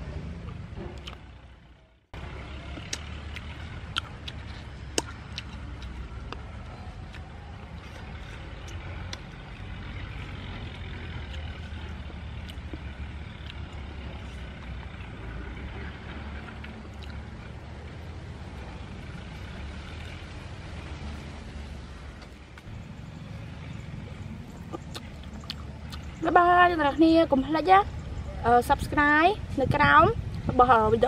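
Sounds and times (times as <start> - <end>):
chewing crunchy food: 2.7 - 14.8, 16.4 - 17.4, 23.8 - 26.3
wind rumble on microphone: 27.8 - 31.0.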